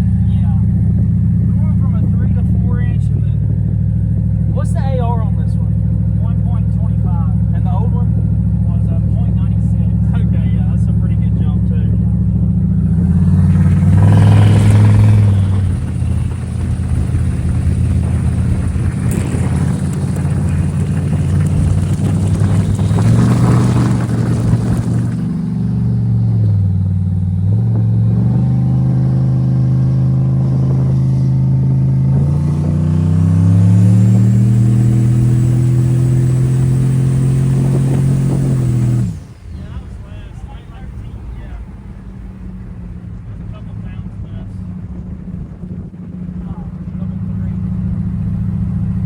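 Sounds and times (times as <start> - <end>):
truck engine revving through gears: 0.0 - 49.0.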